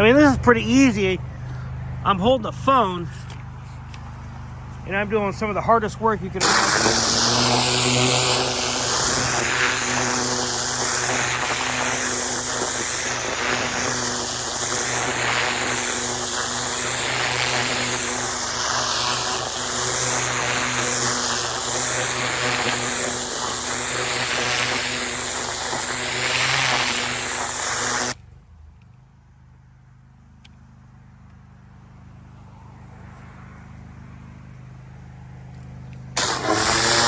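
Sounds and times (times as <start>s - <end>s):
pressure washer motor hum: 2.0s - 28.2s, 35.6s - 37.0s
water jet hissing: 6.4s - 28.2s, 36.2s - 37.0s.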